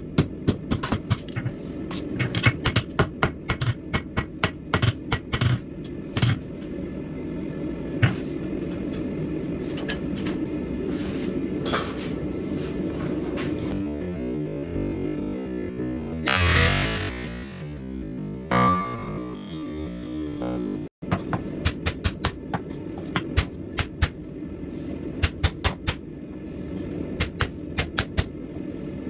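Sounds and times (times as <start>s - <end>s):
hammer striking steel on anvil: 0.0s - 5.6s, 6.2s - 6.5s
steady low hum: 0.0s - 29.0s.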